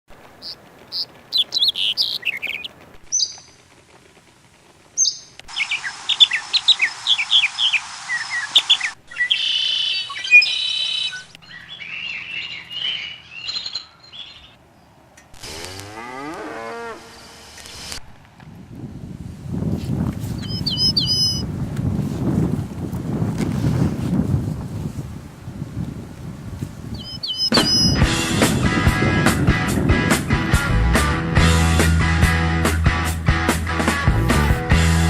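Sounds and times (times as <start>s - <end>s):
birds chirping: 0.4s - 3.7s, 5.0s - 15.1s, 20.4s - 21.4s, 26.9s - 28.1s
cow mooing: 15.5s - 17.1s.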